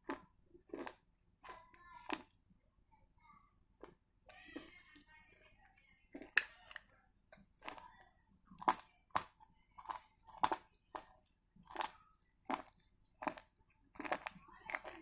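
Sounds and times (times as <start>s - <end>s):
dry clay crunching: 8.6s - 15.0s.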